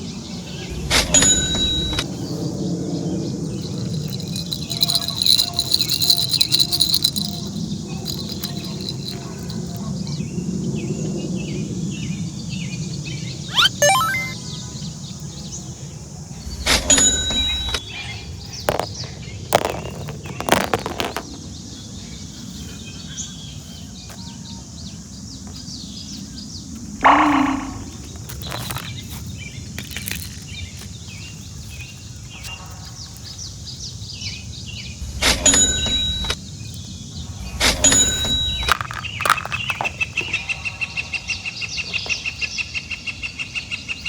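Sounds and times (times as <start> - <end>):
bird chirps: 13.5 - 14.4.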